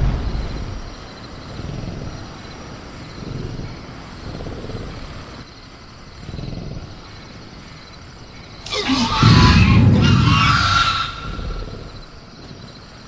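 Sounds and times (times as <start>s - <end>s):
low rumbles: 0.0s - 1.2s, 8.7s - 12.0s
high cricket chirr: 0.0s - 13.0s
velociraptor roar: 8.6s - 12.2s.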